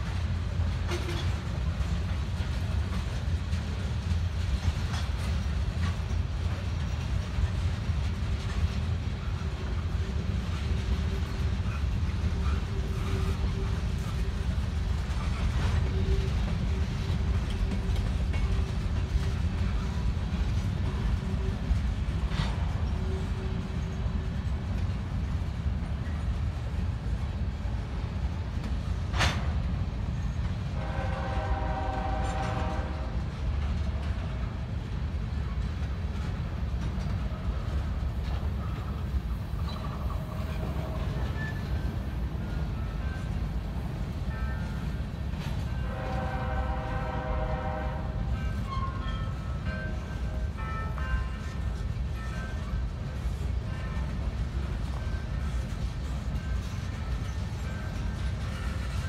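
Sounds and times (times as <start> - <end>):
freight train rumbling past: 0.0 - 59.0
train clanks: 0.0 - 59.0
locomotive air horn blast: 30.8 - 33.2, 45.8 - 48.4.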